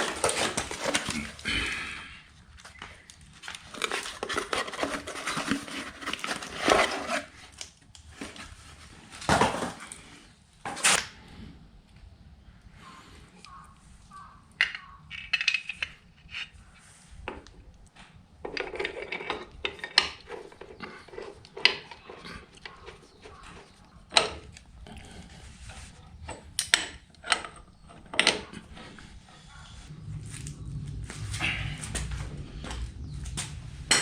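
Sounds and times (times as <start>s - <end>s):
metal parts clinking and knocking: 13.5s - 16.6s, 18.4s - 24.7s, 26.2s - 28.7s.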